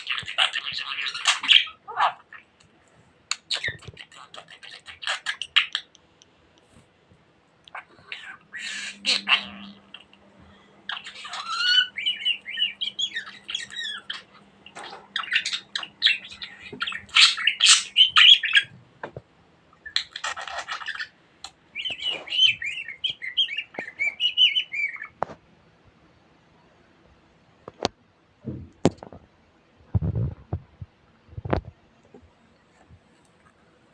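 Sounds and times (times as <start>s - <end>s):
budgerigar warbling and chattering: 0.0s - 2.5s, 3.3s - 5.9s, 7.7s - 10.2s, 10.8s - 18.7s, 21.8s - 25.1s.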